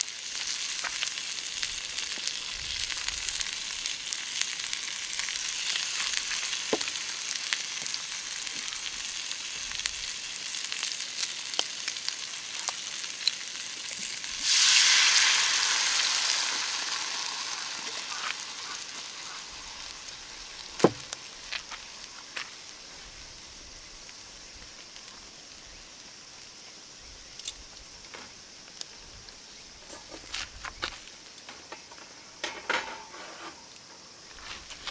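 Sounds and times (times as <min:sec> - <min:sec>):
food sizzling in a frying pan: 0:00.0 - 0:27.4
oil popping: 0:12.4 - 0:21.8
sharp knock: 0:20.8 - 0:21.1.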